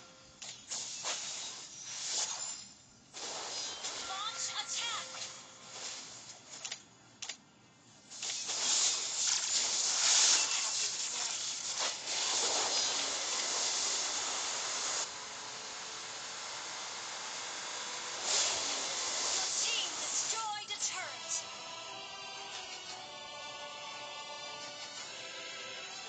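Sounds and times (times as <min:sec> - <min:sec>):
steady hiss: 0:08.0 - 0:20.4.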